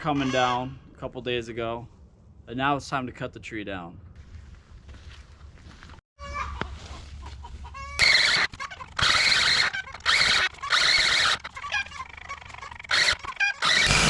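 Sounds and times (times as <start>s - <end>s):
chickens squawking loudly: 0.0s - 0.7s, 7.6s - 14.0s
chickens clucking: 6.2s - 13.8s.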